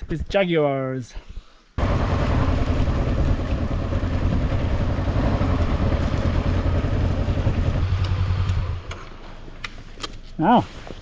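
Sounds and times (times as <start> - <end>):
motorcycle engine running: 1.8 - 8.9.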